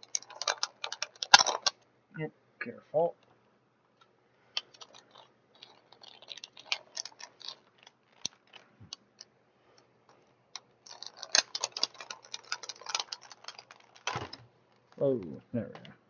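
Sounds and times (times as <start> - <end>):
plastic packaging crackling: 4.6 - 9.0, 10.1 - 15.1.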